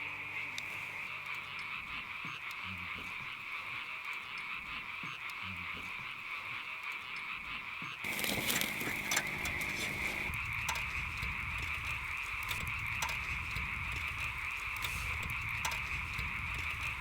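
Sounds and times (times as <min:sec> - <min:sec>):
frogs calling: 0:00.0 - 0:17.0
sharp clicks: 0:08.0 - 0:17.0.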